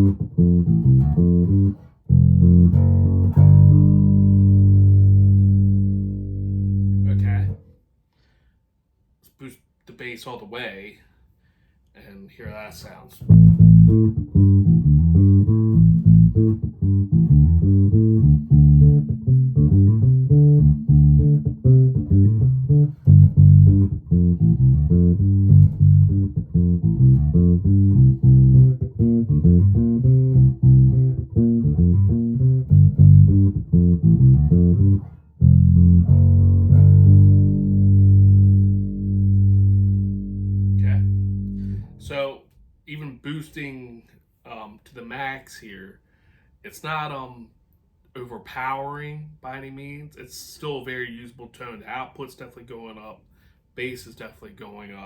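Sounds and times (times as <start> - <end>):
electric bass plucked notes: 0.0 - 7.6, 13.2 - 42.2.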